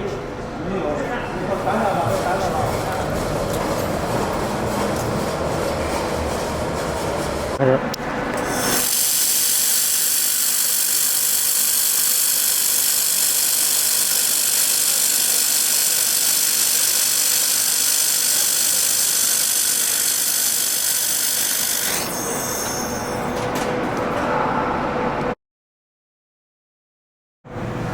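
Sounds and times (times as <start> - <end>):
welding machine hissing and sizzling: 8.5 - 22.0.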